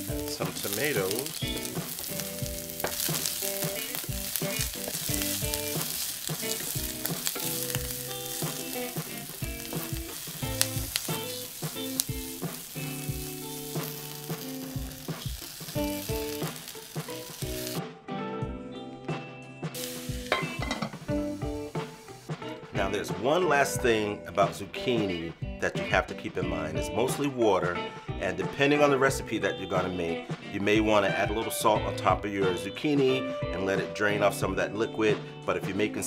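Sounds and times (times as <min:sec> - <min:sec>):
vegetables sizzling in oil: 0:00.0 - 0:17.8, 0:19.8 - 0:22.7.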